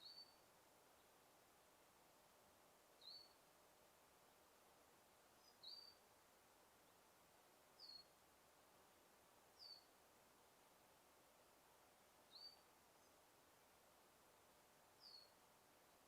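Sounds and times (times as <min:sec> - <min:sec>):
bird high chirp: 0:00.0 - 0:00.4, 0:03.0 - 0:03.4, 0:05.4 - 0:06.0, 0:07.8 - 0:08.1, 0:09.6 - 0:09.9, 0:12.3 - 0:12.6, 0:15.0 - 0:15.3
soft steady hiss: 0:00.0 - 0:16.0.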